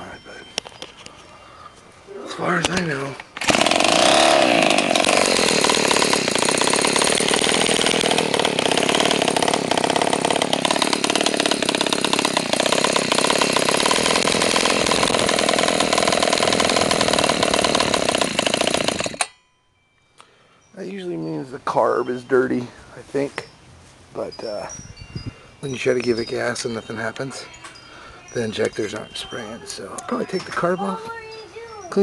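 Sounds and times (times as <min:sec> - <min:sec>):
small two-stroke engine idling: 0:03.5 - 0:19.3.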